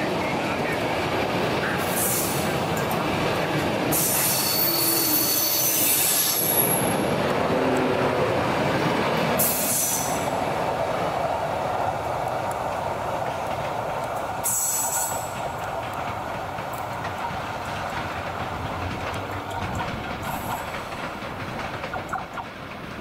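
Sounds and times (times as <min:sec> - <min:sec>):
train wheel rumble: 0:00.0 - 0:23.0
wheels squealing on track: 0:03.9 - 0:07.0.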